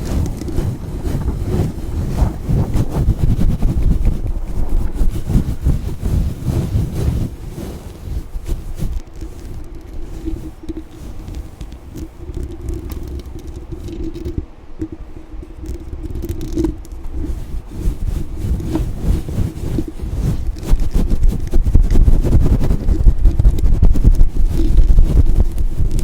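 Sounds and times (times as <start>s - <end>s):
scratching on microphone: 0.0s - 26.0s.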